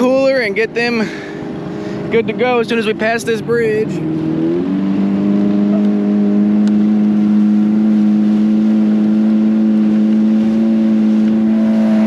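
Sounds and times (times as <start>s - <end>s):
boat motor droning: 0.0s - 12.0s
rushing wind and water: 0.0s - 12.0s.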